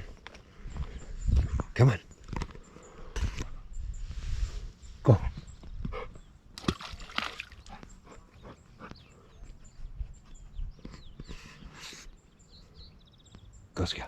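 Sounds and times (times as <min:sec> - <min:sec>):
footsteps squelching in mud and water: 0:06.6 - 0:07.8.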